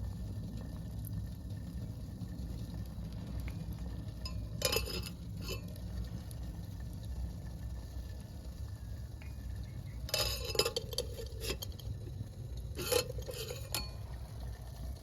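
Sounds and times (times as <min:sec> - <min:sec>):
metal utensils clinking on a pot: 0:04.2 - 0:05.7, 0:10.0 - 0:12.0, 0:12.7 - 0:14.1.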